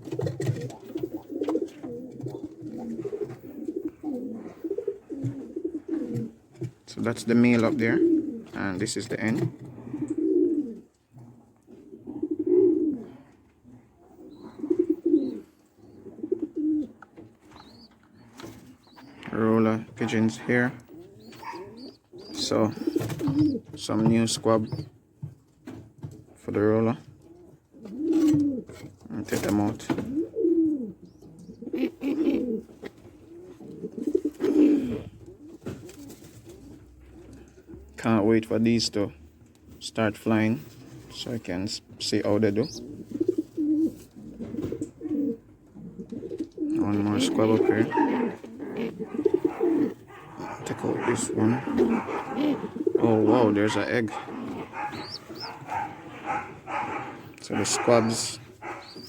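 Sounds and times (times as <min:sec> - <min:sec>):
pigeons cooing: 0:00.0 - 0:08.6, 0:09.2 - 0:25.8, 0:27.0 - 0:38.0, 0:40.4 - 0:59.0.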